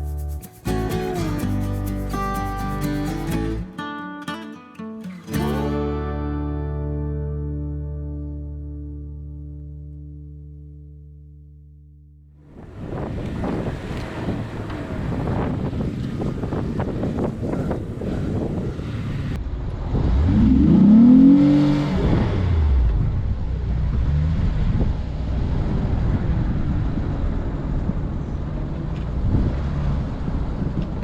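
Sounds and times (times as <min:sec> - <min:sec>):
tyres and body rumbling: 0:12.4 - 0:31.0
off-road vehicle engine revving: 0:12.6 - 0:26.0.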